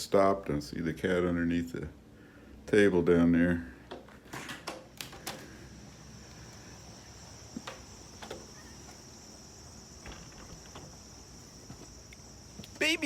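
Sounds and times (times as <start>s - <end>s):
insects chirring: 4.8s - 13.0s.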